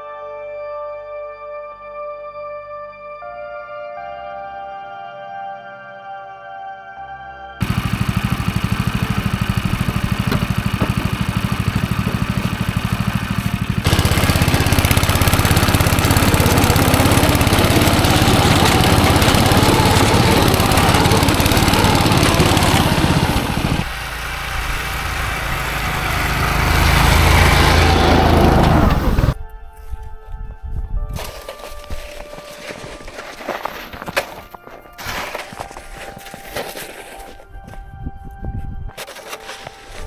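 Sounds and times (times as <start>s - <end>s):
small gasoline engine running: 7.6s - 29.4s.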